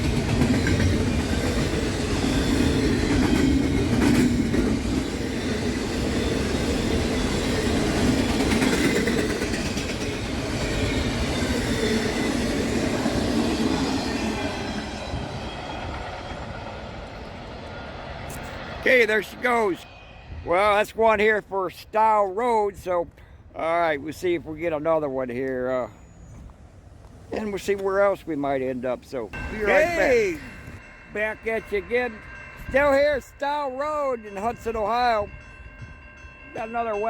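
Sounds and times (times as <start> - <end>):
train wheels clattering on rails: 0.0 - 17.4.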